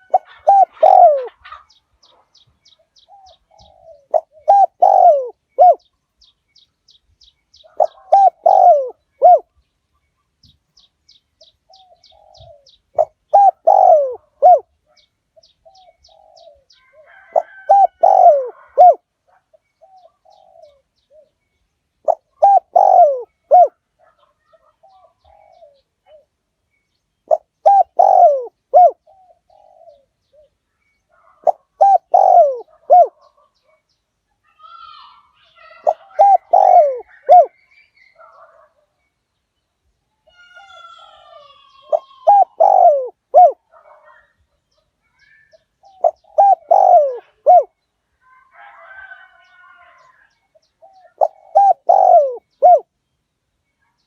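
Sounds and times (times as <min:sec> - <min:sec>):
dove cooing: 0:00.0 - 0:02.4, 0:03.0 - 0:05.9, 0:07.6 - 0:09.5, 0:11.7 - 0:21.4, 0:22.0 - 0:26.3, 0:27.3 - 0:33.8, 0:34.6 - 0:38.8, 0:40.3 - 0:44.3, 0:45.2 - 0:47.8, 0:48.6 - 0:52.9.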